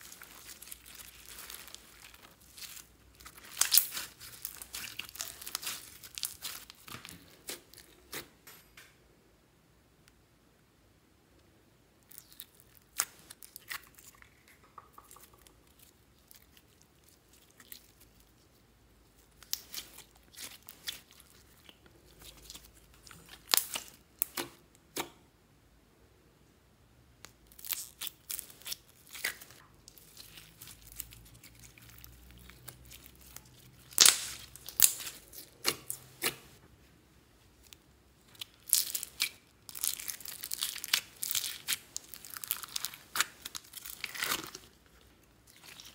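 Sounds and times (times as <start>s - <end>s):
slime crackling and popping: 0.0s - 7.8s, 19.3s - 24.6s, 27.5s - 36.6s, 37.7s - 45.9s
plastic crinkling: 0.0s - 8.2s, 38.3s - 45.9s.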